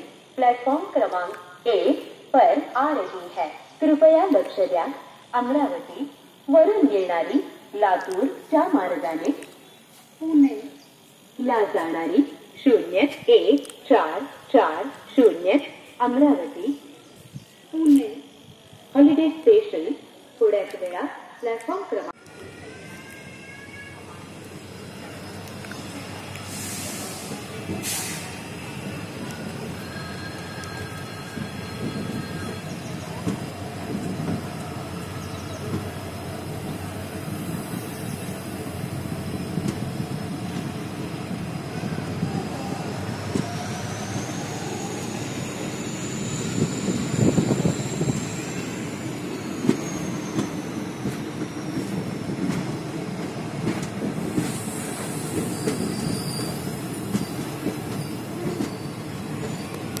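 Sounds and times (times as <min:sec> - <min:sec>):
train wheels rumbling and clattering: 0:23.2 - 1:00.0.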